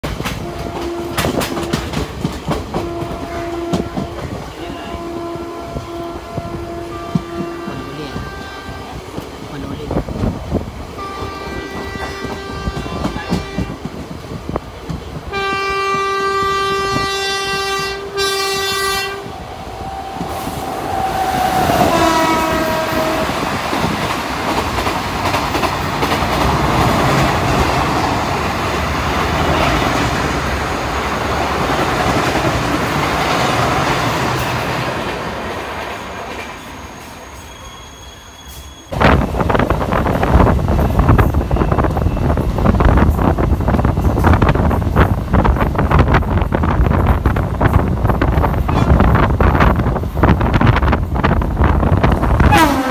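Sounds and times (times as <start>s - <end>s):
train coaches rushing and clattering: 0.0s - 52.9s
locomotive horn blasts: 0.4s - 1.8s, 2.8s - 9.0s, 11.0s - 13.8s, 15.3s - 23.5s, 52.4s - 52.9s.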